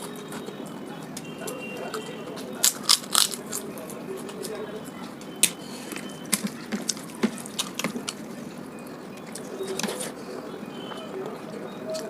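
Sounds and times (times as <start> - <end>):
wet eating clicks and smacks: 2.6 - 3.7, 5.2 - 10.1.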